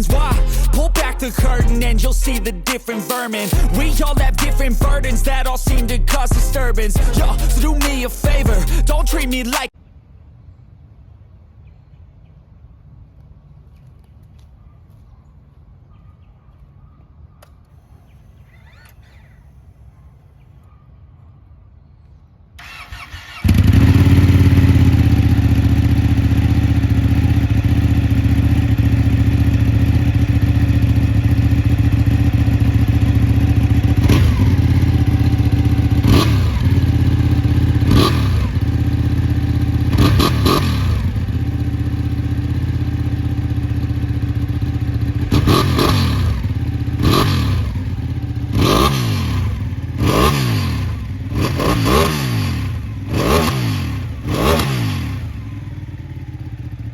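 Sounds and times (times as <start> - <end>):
motorcycle engine idling and revving: 0.0 - 2.5, 22.6 - 56.9.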